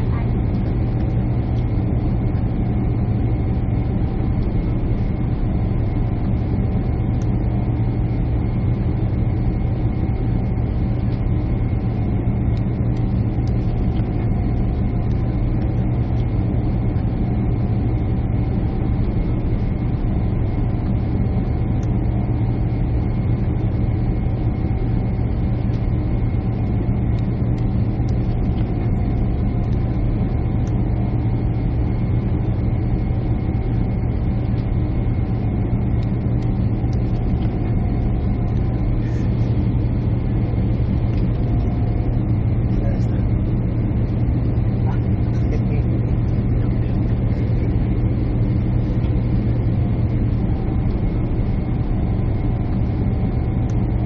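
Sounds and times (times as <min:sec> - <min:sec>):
jet engine drone: 0:00.0 - 0:54.0
cabin air rush: 0:36.6 - 0:53.1.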